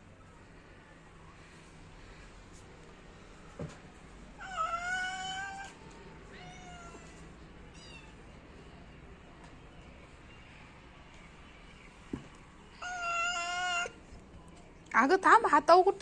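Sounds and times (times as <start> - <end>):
cat meowing: 4.4 - 8.2, 12.8 - 14.0.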